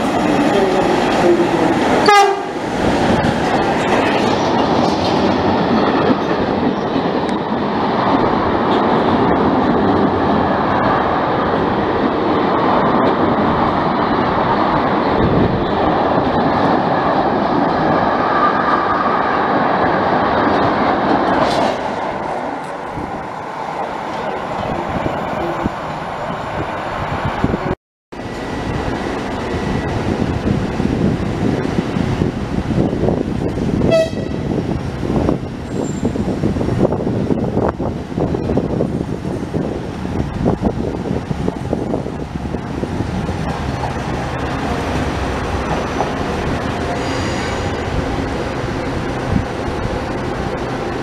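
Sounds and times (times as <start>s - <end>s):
train rumble and wheel clatter: 0.0s - 51.0s
train horn: 2.0s - 2.5s, 33.9s - 34.5s, 47.0s - 47.8s.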